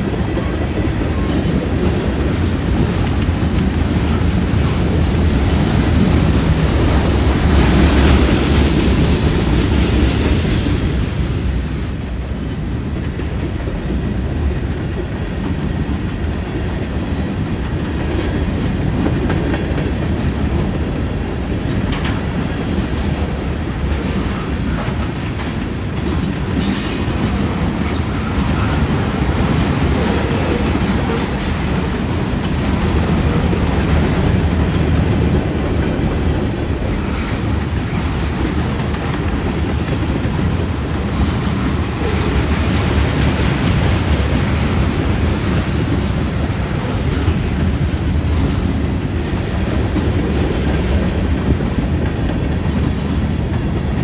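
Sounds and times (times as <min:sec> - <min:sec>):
freight train rumble: 0:00.0 - 0:54.0
wheels clacking over rail joints: 0:00.0 - 0:54.0.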